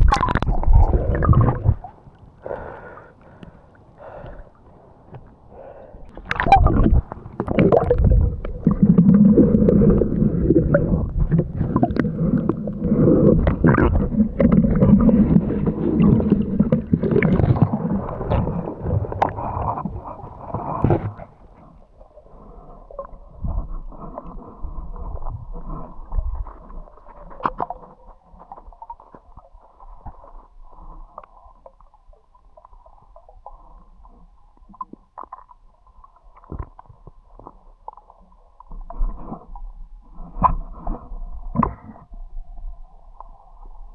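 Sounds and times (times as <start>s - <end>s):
low rumble: 0.0s - 1.9s
muffled underwater rumble: 0.0s - 43.9s
muffled water sloshing and gurgling: 0.0s - 43.9s.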